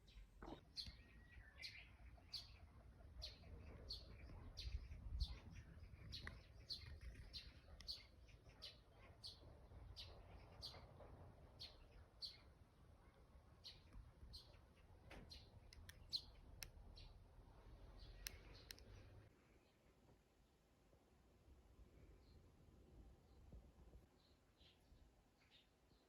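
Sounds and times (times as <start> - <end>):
bird chirping: 0.0 - 19.8.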